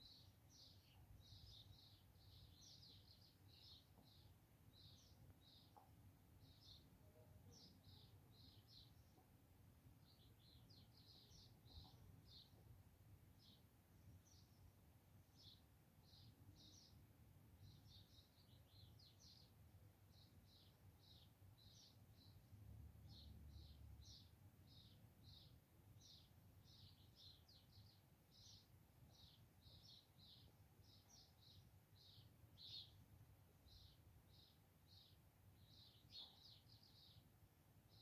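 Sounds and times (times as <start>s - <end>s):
small songbird chirping: 0.0s - 38.0s.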